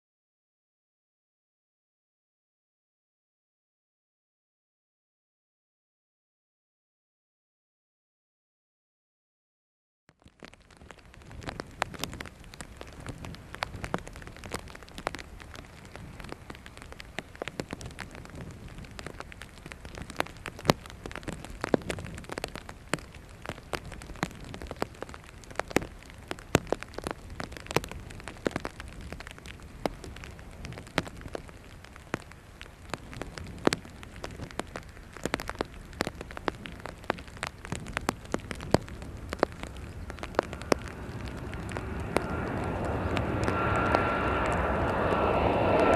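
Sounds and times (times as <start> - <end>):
raindrops ticking near microphone: 10.1 - 45.9
steady rain: 10.1 - 45.9
distant jet aircraft engine: 38.2 - 45.9.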